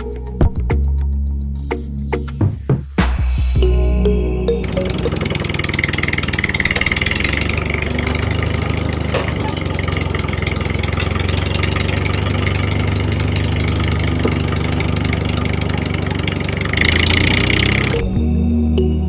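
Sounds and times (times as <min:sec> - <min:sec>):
music: 0:00.0 - 0:05.4, 0:17.9 - 0:19.0
engine idling with a knock: 0:05.0 - 0:17.9.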